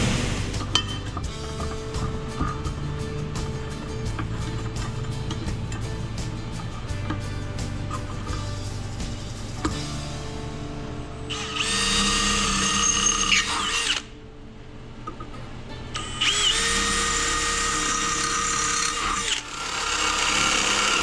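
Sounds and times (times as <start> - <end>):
power tool whining: 11.3 - 14.1, 16.0 - 21.0.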